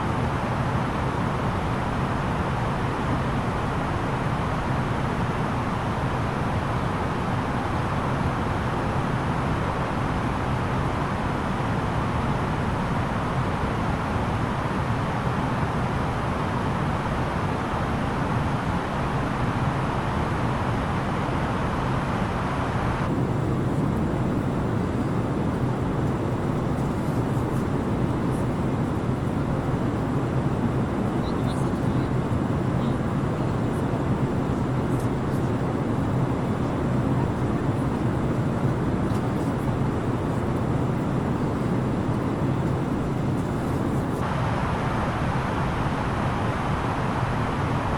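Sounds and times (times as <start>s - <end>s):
airliner cabin roar: 0.0s - 47.9s.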